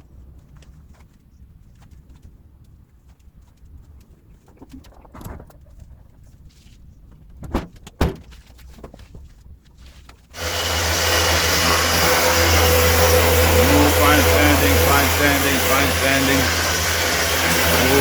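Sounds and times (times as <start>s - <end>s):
power tool whirring: 10.4s - 18.0s.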